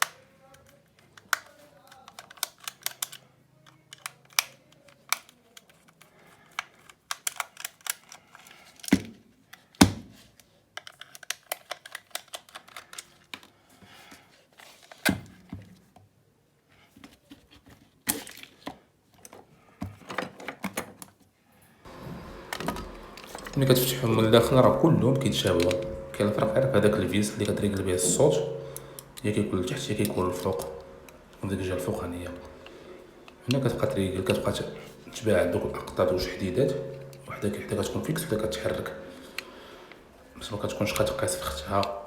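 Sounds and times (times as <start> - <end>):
small plastic parts clicking: 0.0 - 15.6.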